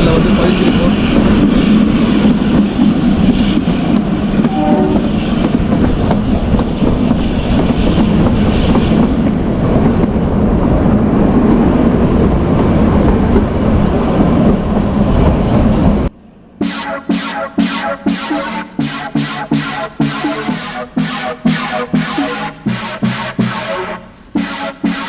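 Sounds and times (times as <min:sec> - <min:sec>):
train rumbling: 0:00.0 - 0:25.0
train horn: 0:04.4 - 0:05.2.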